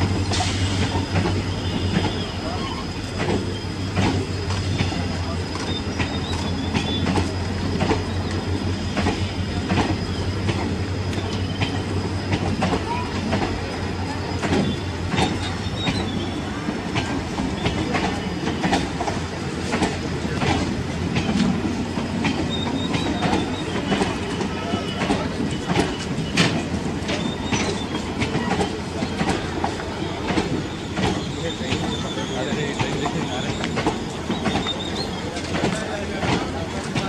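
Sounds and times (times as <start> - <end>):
train wheels clicking over rail joints: 0.0 - 37.0
faint high squeal: 0.4 - 4.0, 30.0 - 35.4.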